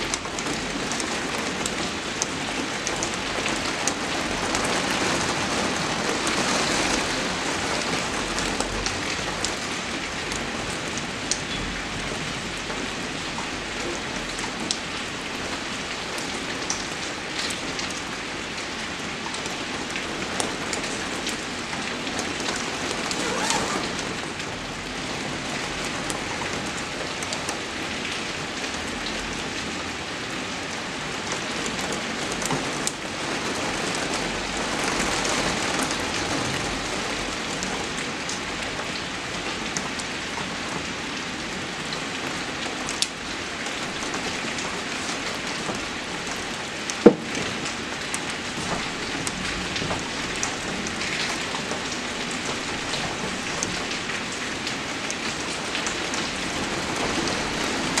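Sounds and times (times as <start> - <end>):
raindrop hits: 47.1 - 47.7.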